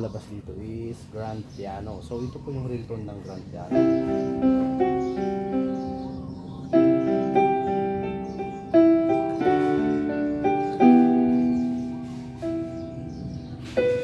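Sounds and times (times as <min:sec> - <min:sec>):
piano chords from keyboard speaker: 0:03.5 - 0:14.0.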